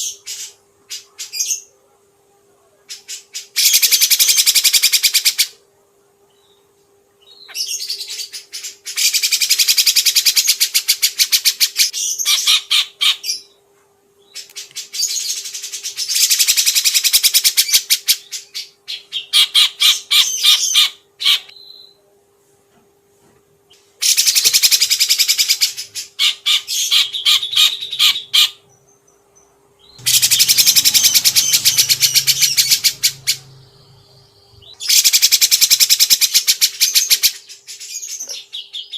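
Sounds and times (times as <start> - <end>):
faint steady hum: 0.0 - 38.9
songbird chattering trills: 29.8 - 38.9.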